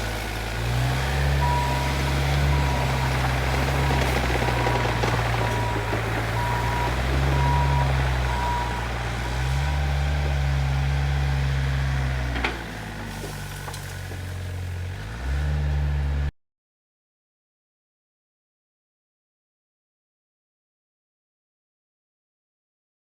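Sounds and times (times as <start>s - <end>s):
excavator diesel engine running: 0.0s - 16.3s
travel alarm beeps: 1.4s - 8.8s.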